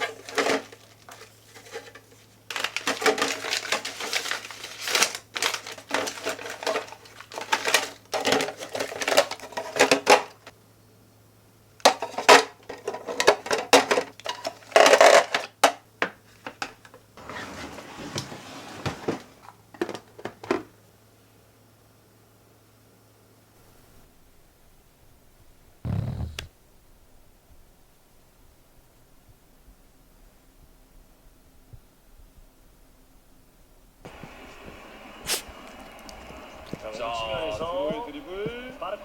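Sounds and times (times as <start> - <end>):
dishes and utensils clattering: 0.0 - 4.4
faint steady hum: 0.0 - 17.4, 19.3 - 39.0.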